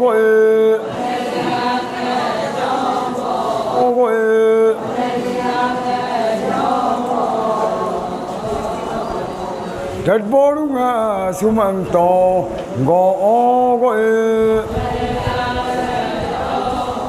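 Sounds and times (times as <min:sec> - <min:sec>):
group of voices chanting in unison: 0:00.1 - 0:10.1, 0:14.0 - 0:17.0.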